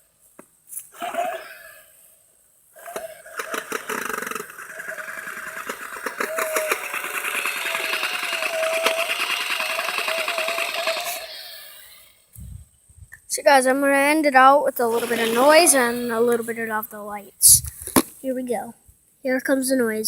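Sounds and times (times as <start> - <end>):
toy chainsaw buzzing: 2.8 - 12.3, 14.8 - 16.6.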